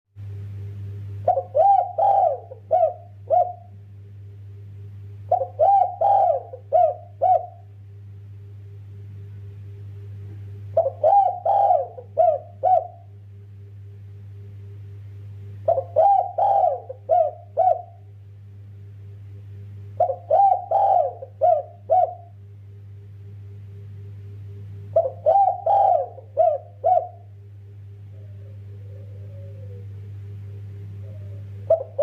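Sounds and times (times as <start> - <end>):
steady low hum: 0.2 - 32.0
dove cooing: 1.2 - 3.8, 5.2 - 7.7, 10.7 - 13.2, 15.6 - 18.1, 20.0 - 22.4, 24.8 - 32.0.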